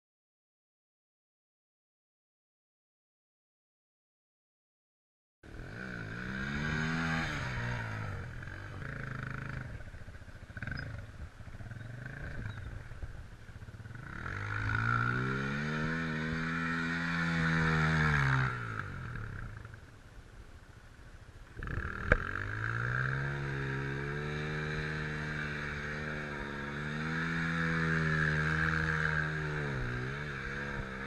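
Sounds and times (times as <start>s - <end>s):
motorcycle engine revving: 5.5s - 19.9s, 21.5s - 31.0s.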